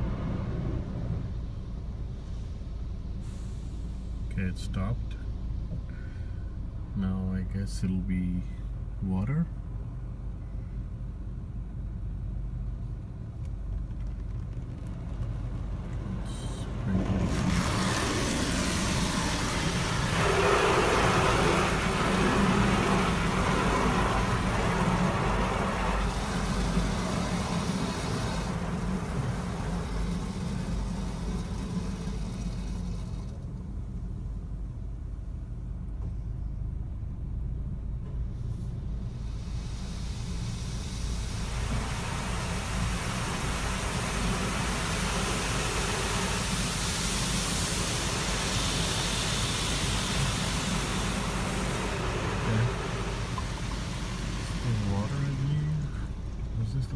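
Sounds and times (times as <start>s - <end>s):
car wash low rumble: 0.0s - 56.9s
spray hissing on car: 17.2s - 33.4s, 38.9s - 56.4s.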